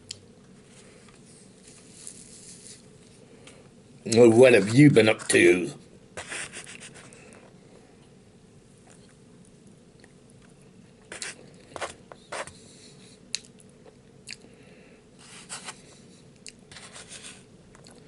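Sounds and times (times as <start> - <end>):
person chewing: 13.3 - 14.5, 16.4 - 16.6, 17.7 - 18.0.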